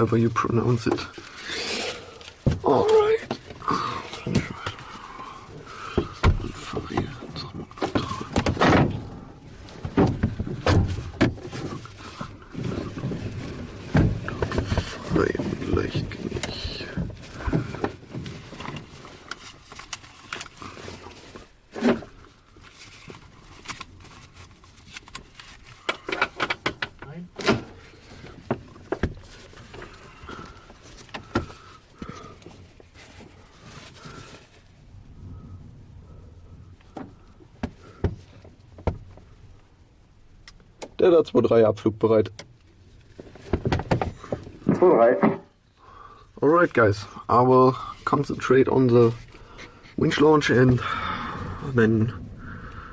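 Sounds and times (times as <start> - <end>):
cockpit handling clicks and knocks: 25.0 - 27.8
low rumble: 33.4 - 38.0.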